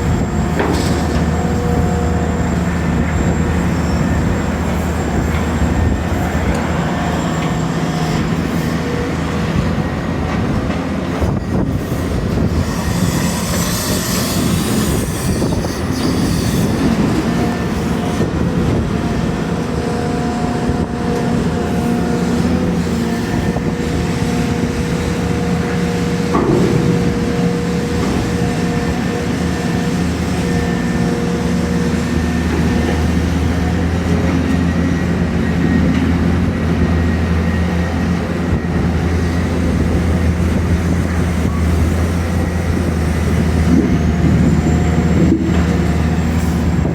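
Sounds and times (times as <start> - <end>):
excavator diesel engines droning: 0.0 - 46.9
hydraulic whine: 0.0 - 46.9.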